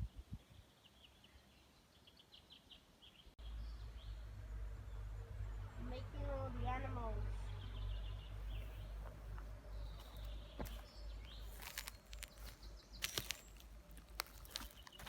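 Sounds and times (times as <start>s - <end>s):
wind rumble on microphone: 0.0s - 0.6s.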